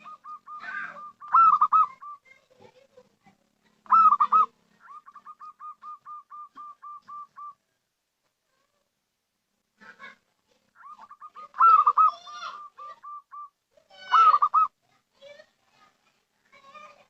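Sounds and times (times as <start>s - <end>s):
dove cooing: 0.0s - 2.6s, 3.8s - 7.6s, 9.8s - 14.7s.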